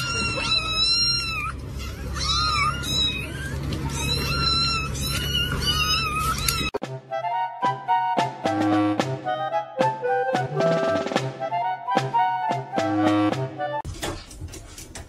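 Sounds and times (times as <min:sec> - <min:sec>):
kittens mewing: 0:00.0 - 0:06.8.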